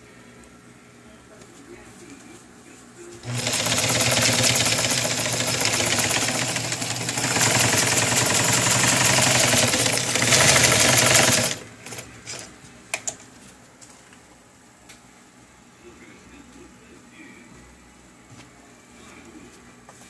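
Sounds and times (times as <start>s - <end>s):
sewing machine rattling: 3.2s - 12.5s.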